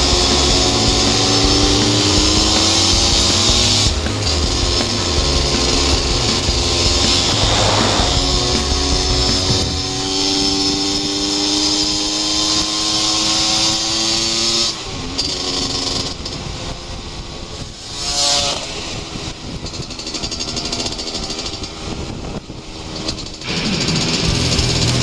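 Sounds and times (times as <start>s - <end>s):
two-stroke motorcycle engine: 0.0s - 17.0s.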